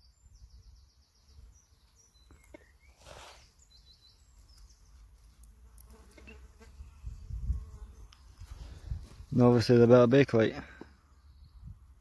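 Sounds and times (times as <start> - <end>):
soft rustle: 2.9 - 3.6.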